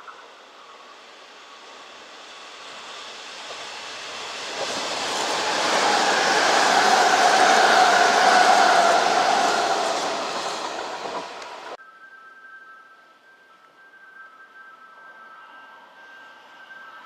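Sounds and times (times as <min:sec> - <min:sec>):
electric train approaching: 0:00.0 - 0:11.8, 0:14.9 - 0:17.0
pitched whine of train: 0:00.0 - 0:17.0.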